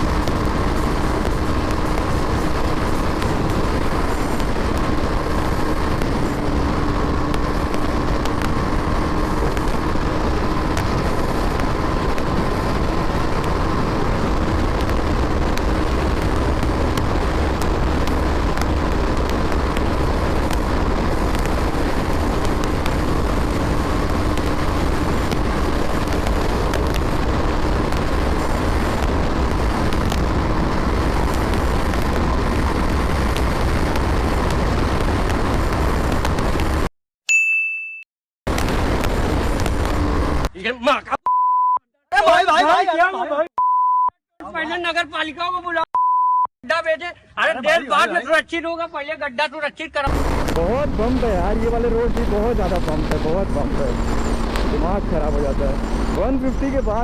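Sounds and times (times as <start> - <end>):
motorcycle engine at high revs: 0.0 - 36.9, 50.1 - 57.0
wind rush: 0.0 - 36.9, 38.5 - 40.5, 50.1 - 57.0.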